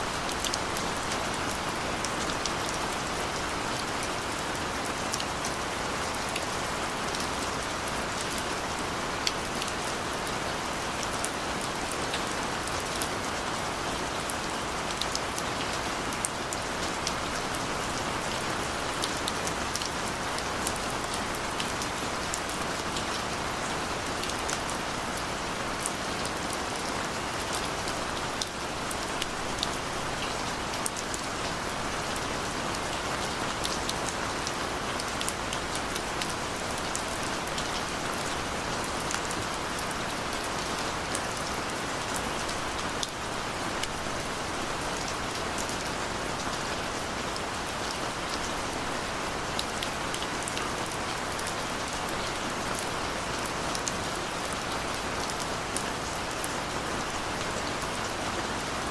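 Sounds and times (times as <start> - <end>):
rain falling: 0.0 - 58.9.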